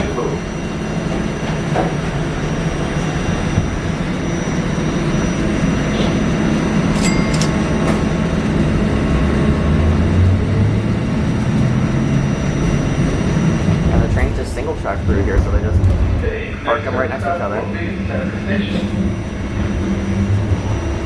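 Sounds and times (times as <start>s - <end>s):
low motor hum: 0.0s - 21.0s
train wheels rumbling on rail: 12.6s - 21.0s.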